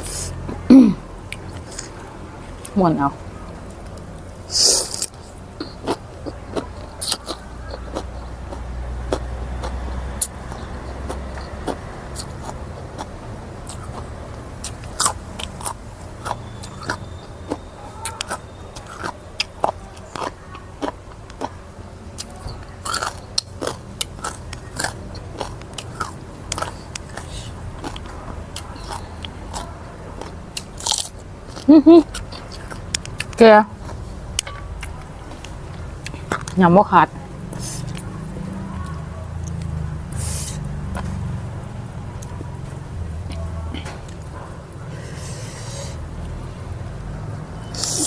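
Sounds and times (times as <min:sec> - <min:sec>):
person chewing food: 0:00.0 - 0:02.8, 0:03.4 - 0:36.6, 0:37.4 - 0:41.6, 0:42.2 - 0:47.0
mouth clicks and smacks: 0:03.5 - 0:21.6, 0:22.2 - 0:36.6, 0:47.6 - 0:48.0.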